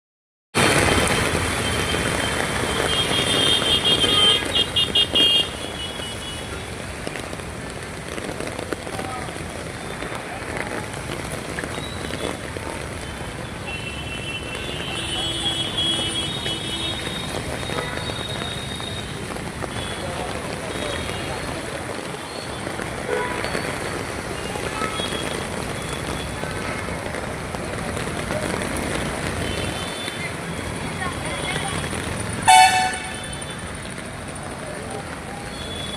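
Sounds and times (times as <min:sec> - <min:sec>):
tyres on wet road: 0:00.5 - 0:35.9
rain: 0:00.6 - 0:35.9
horn tone and short blasts: 0:32.5 - 0:33.2.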